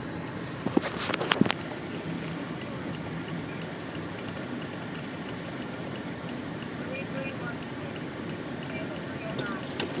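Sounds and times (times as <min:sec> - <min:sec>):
car road rumble: 0:00.0 - 0:10.0
faint ticking: 0:00.1 - 0:10.0
sharp clicks and knocks: 0:00.6 - 0:01.7, 0:08.6 - 0:10.0.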